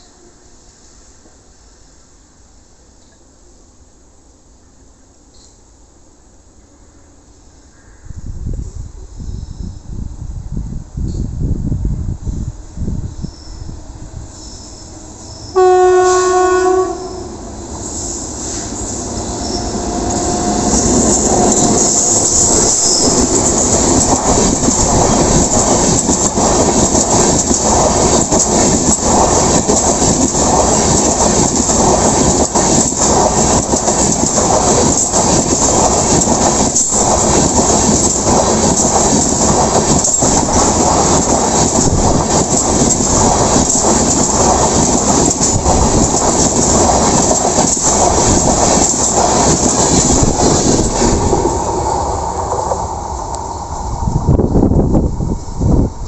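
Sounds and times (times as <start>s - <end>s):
train wheels rushing on rail: 8.4s - 56.0s
wheels clicking over rail joints: 19.5s - 51.8s.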